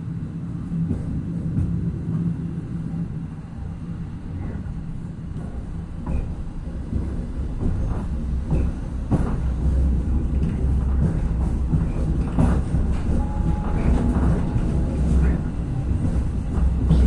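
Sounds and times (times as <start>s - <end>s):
diesel railcar rumbling: 0.0s - 17.0s
wheels clicking on rails: 4.4s - 17.0s.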